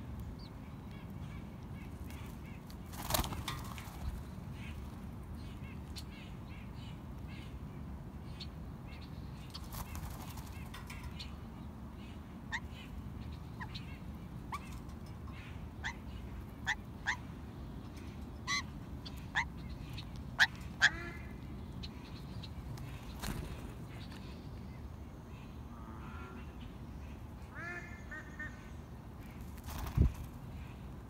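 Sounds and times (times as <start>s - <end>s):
low outdoor rumble: 0.0s - 31.0s
bird calls: 8.3s - 30.8s.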